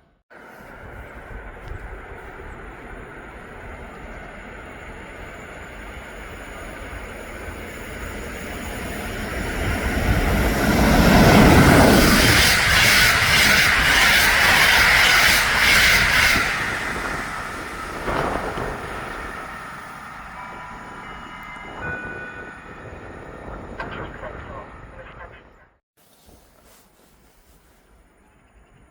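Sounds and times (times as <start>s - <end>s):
train passing: 0.1s - 25.8s
steady high ring: 16.8s - 23.8s.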